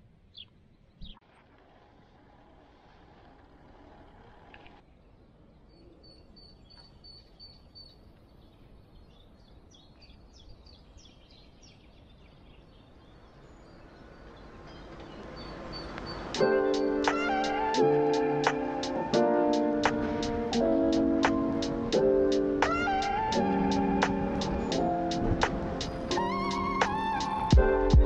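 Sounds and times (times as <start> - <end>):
small birds chirping: 0.3 - 1.2, 4.8 - 28.0
music: 16.4 - 28.0.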